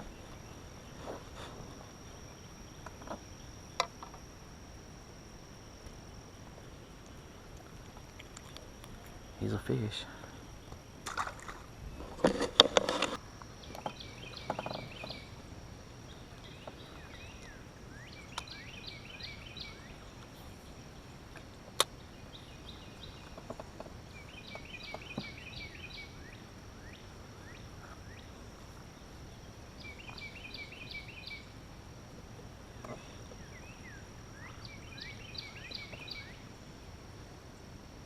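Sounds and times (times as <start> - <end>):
thin insect drone: 0.0 - 38.0.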